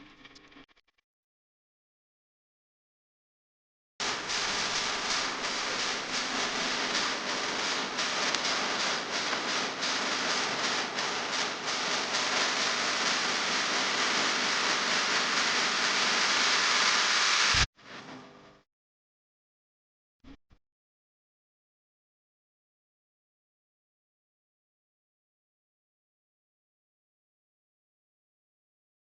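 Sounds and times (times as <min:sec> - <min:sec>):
heavy rain falling: 0:04.0 - 0:17.7.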